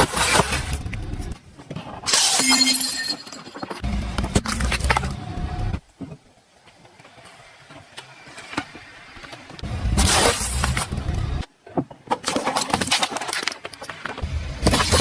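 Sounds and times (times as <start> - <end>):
tyres crushing objects: 0.0 - 2.7, 3.3 - 5.8, 9.5 - 15.0
low rumble: 14.2 - 15.0.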